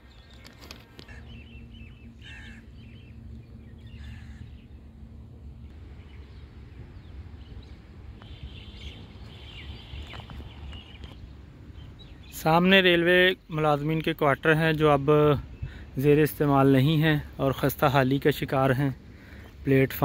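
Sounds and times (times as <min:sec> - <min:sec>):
low outdoor rumble: 0:00.0 - 0:20.0
bird chirps: 0:06.0 - 0:12.5.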